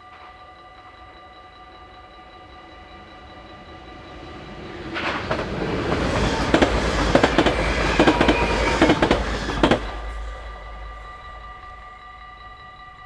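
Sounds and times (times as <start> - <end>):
level crossing warning bell: 0.0 - 13.0
train wheels clicking over rail joints: 2.6 - 12.2.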